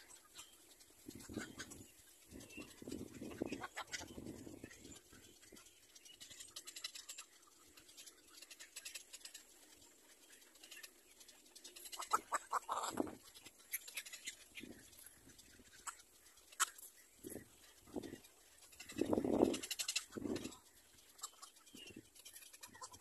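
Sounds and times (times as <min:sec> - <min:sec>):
faint ticks and rustles: 0:00.0 - 0:23.0.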